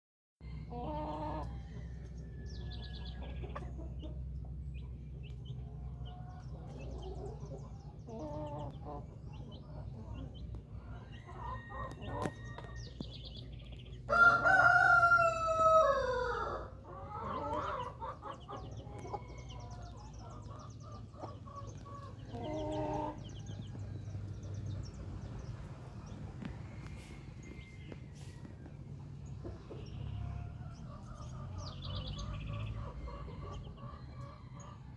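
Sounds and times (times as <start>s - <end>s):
chickens clucking: 0.4s - 34.9s
rooster crowing: 11.0s - 13.0s, 14.1s - 16.8s.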